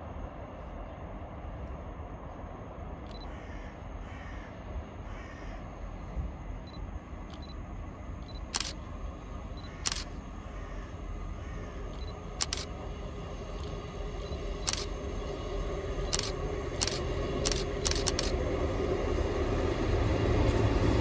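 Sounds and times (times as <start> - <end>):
diesel train rumble: 0.0 - 21.0
sharp clicks: 8.2 - 8.8, 9.6 - 10.2, 11.9 - 12.7, 13.6 - 14.9, 16.1 - 18.4.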